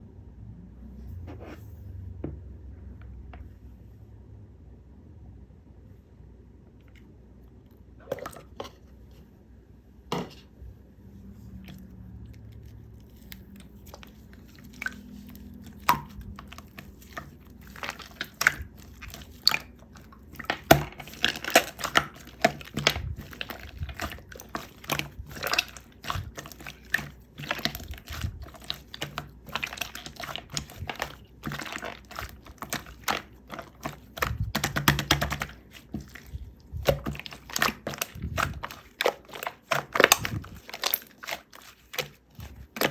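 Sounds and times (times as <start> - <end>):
slime wet clicking and crackling: 11.6 - 42.9.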